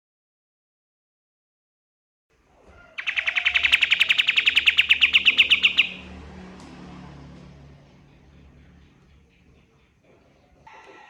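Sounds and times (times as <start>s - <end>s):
bird singing a fast trill: 3.0s - 6.0s.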